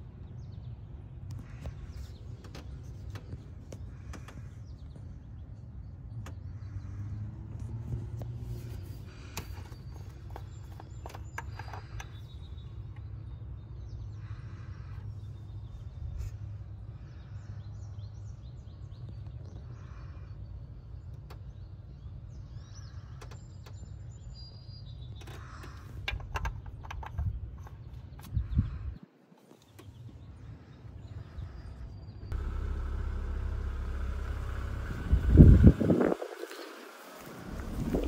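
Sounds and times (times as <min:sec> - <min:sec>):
birds chirping: 0:00.0 - 0:38.0
car engine idling: 0:01.3 - 0:13.1, 0:29.7 - 0:38.0.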